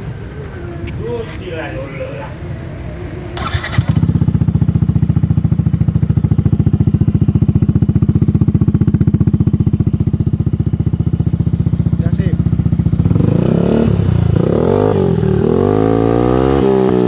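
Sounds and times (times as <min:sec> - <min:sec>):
scooter engine idling: 0:02.4 - 0:16.0.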